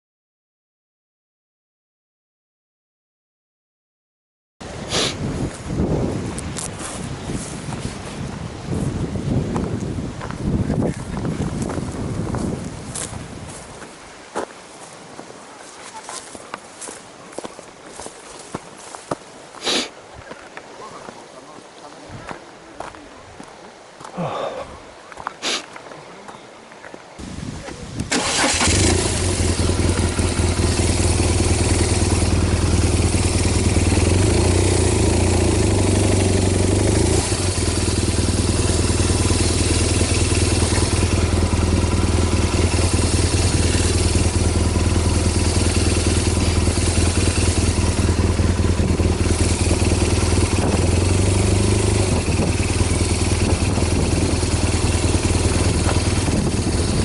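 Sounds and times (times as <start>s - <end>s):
motorcycle engine starting and running: 6.3s - 13.6s, 28.0s - 57.0s.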